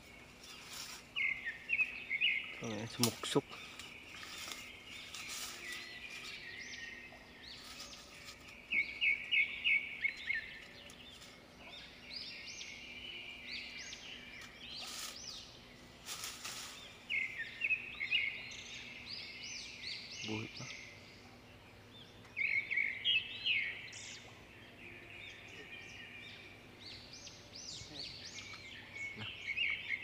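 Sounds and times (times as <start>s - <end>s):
leaves and branches rustling: 0.0s - 20.5s
small birds chirping: 0.0s - 30.0s.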